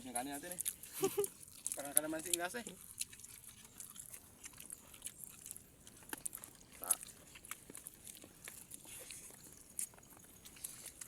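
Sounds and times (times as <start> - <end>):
chewing food: 0.0 - 11.0.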